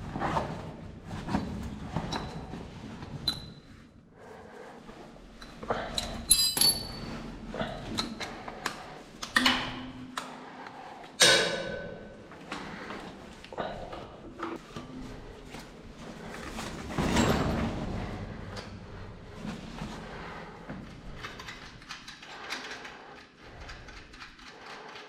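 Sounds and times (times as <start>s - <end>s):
metal tools clinking: 6.1s - 7.1s.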